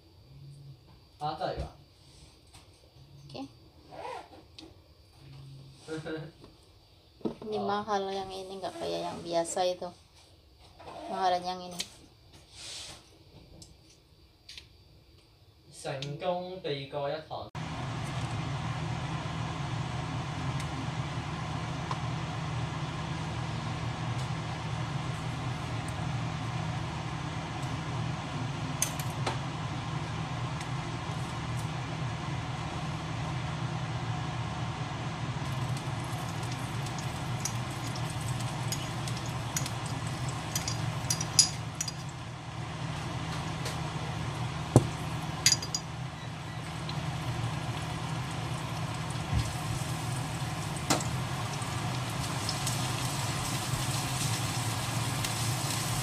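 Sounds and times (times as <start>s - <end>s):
low machine hum: 17.3s - 56.0s.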